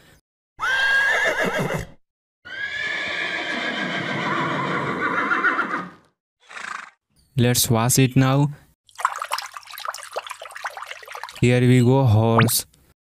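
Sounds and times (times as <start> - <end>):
horse whinnying: 0.6 - 6.9.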